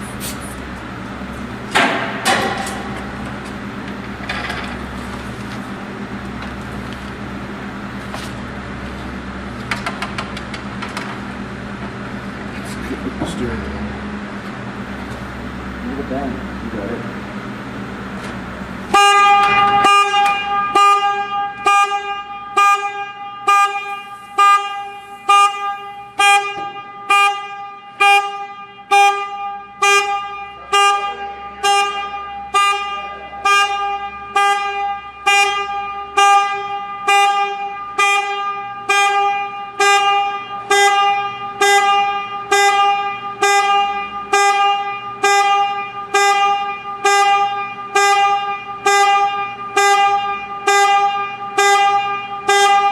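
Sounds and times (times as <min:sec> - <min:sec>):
car alarm horn honking: 0:18.9 - 0:52.9.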